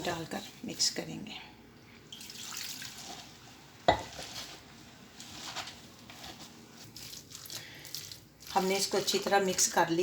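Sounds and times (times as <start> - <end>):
hands squishing wet batter: 4.1 - 10.0.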